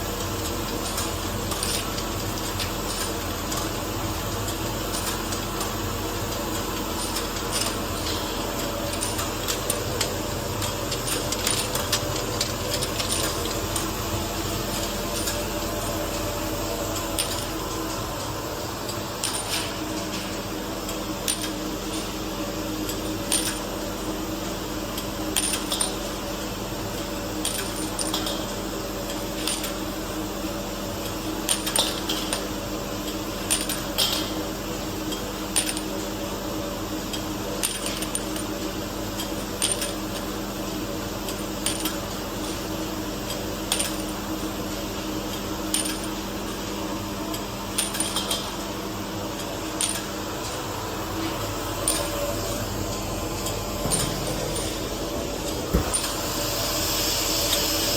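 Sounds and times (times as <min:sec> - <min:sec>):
machine humming: 0:48.7 - 0:57.9.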